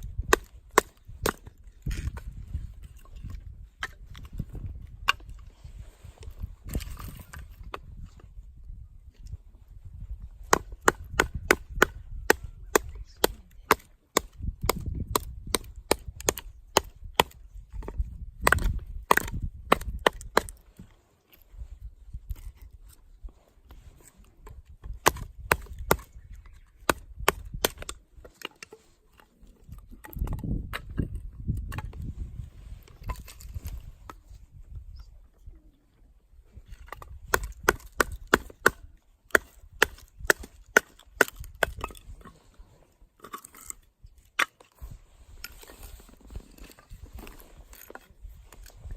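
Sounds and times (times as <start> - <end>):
chopping on wood: 10.4 - 20.6, 25.0 - 26.1, 26.8 - 28.0, 36.8 - 41.9.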